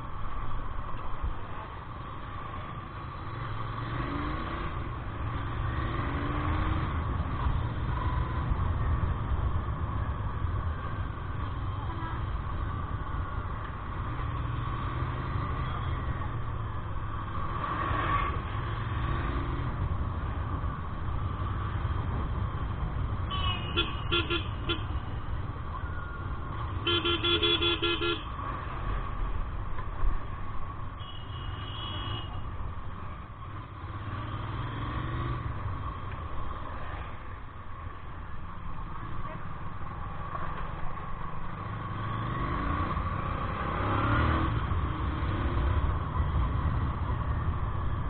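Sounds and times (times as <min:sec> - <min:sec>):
road and wind rumble: 0:00.0 - 0:48.0
vehicle horns honking: 0:23.3 - 0:25.0, 0:26.8 - 0:28.3, 0:31.0 - 0:32.4.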